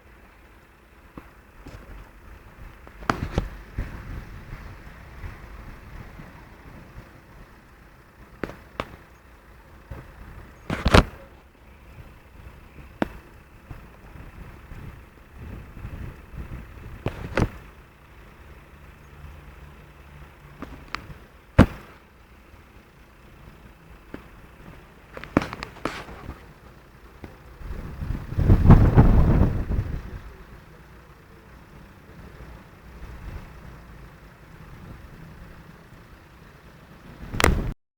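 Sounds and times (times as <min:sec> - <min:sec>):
storm wind: 0:01.4 - 0:08.4, 0:11.8 - 0:18.1, 0:26.1 - 0:30.6.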